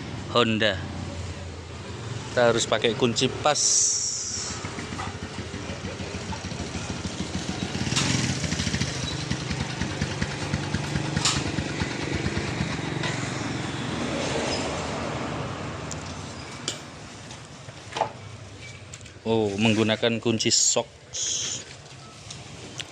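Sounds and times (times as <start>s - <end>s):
motorcycle engine running: 3.6s - 14.0s.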